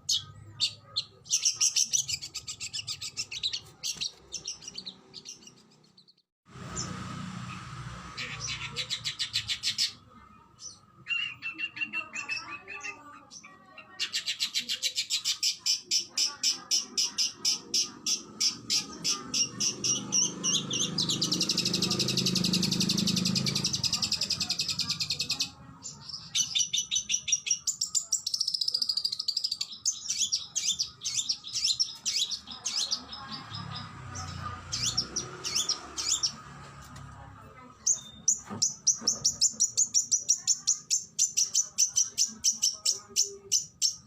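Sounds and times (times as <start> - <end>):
magpie-robin singing: 0.0 - 7.0, 8.2 - 36.5, 37.7 - 44.0.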